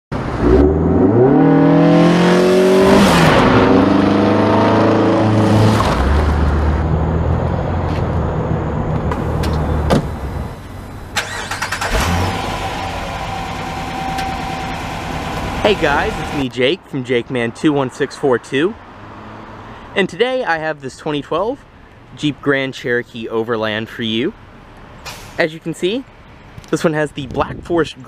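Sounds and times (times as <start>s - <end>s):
car engine revving: 0.2s - 16.4s.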